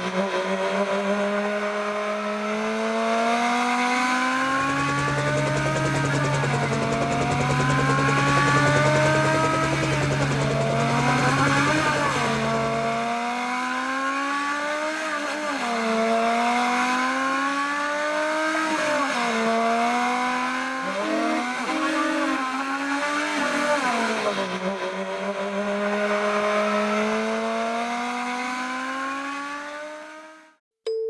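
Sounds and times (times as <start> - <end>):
car engine accelerating: 0.0 - 30.6
steady low hum: 4.5 - 13.2.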